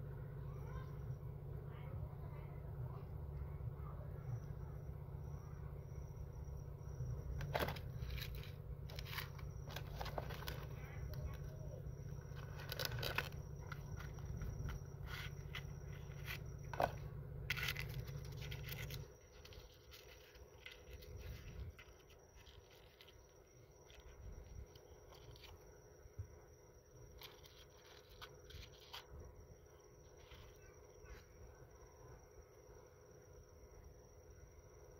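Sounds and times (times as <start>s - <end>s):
low steady hum: 0.0s - 34.9s
handling scrapes and clicks: 7.4s - 25.7s, 27.1s - 29.2s.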